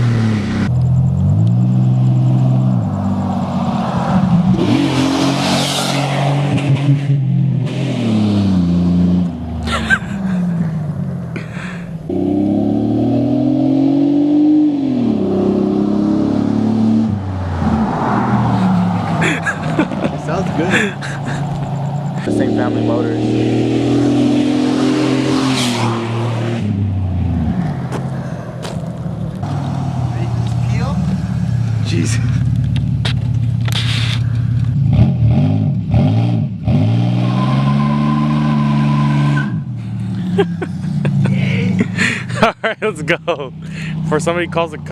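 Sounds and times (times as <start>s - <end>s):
car engine accelerating hard: 0.0s - 44.9s.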